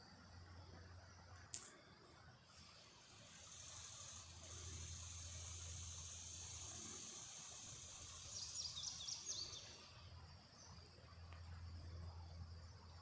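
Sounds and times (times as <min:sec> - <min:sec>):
high insect buzz: 0:02.5 - 0:10.1
small bird chirping: 0:08.1 - 0:10.8.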